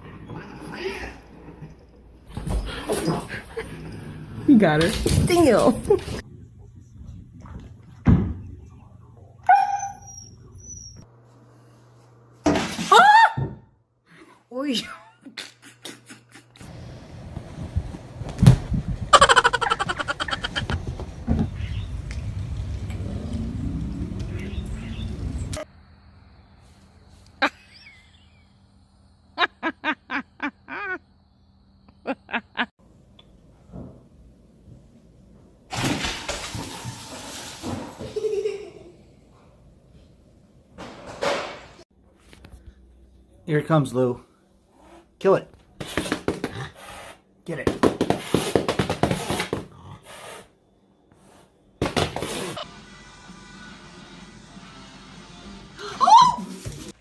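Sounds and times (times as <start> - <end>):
dog whining: 9.4 - 11.0.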